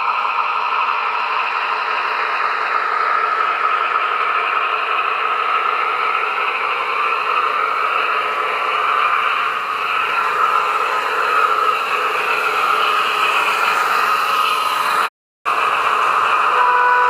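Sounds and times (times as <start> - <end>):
diesel engine sound effect drone: 0.0 - 17.0.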